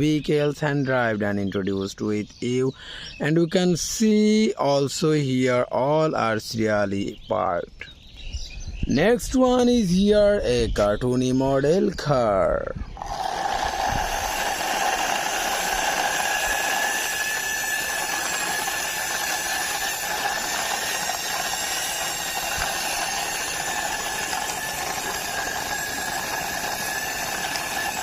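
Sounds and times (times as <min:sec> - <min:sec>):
toy car wheels rolling: 0:13.0 - 0:28.0.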